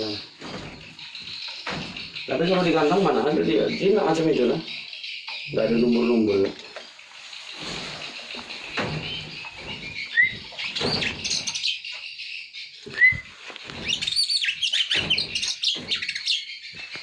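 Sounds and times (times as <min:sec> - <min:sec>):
bird chirping: 0:00.0 - 0:17.0
knocks: 0:00.4 - 0:02.6, 0:08.7 - 0:11.6, 0:13.7 - 0:16.3
rustling: 0:06.7 - 0:11.7, 0:12.8 - 0:17.0
bird upslurred whistles: 0:09.0 - 0:11.8, 0:12.9 - 0:16.5.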